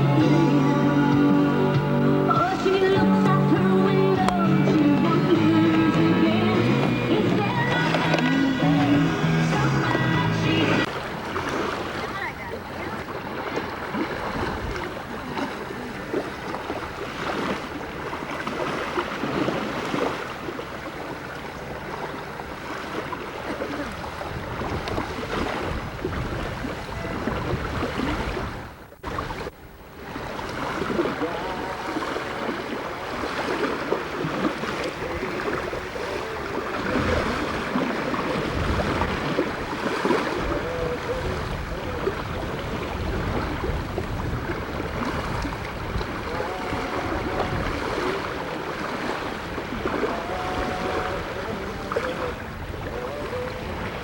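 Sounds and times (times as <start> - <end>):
boat motor: 0.0 - 54.0
water rushing: 0.0 - 54.0
wind noise on microphone: 12.7 - 21.2, 23.3 - 54.0.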